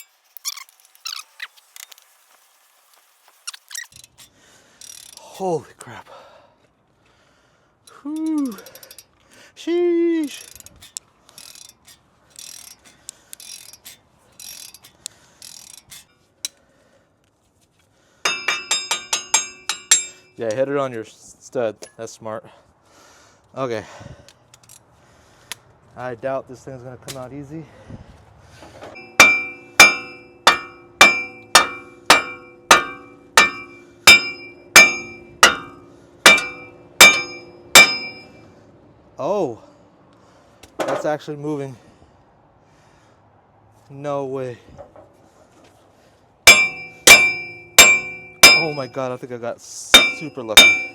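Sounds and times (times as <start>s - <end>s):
ratchet wrench clicking: 3.7s - 5.2s, 7.9s - 9.2s, 10.3s - 16.6s
hammer striking steel: 18.2s - 20.4s, 29.0s - 38.4s, 46.4s - 49.1s, 49.9s - 50.9s.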